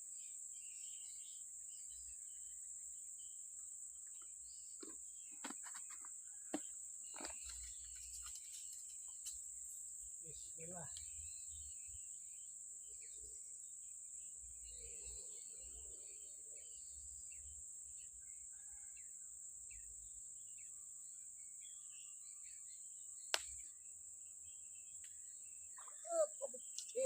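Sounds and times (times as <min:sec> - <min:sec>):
insects droning: 0:00.0 - 0:27.0
bird chirps: 0:03.2 - 0:09.5, 0:24.4 - 0:27.0.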